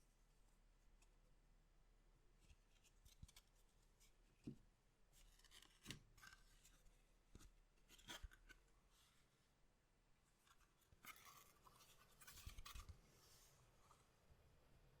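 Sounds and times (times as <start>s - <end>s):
cards and packaging rustling: 10.5s - 12.9s.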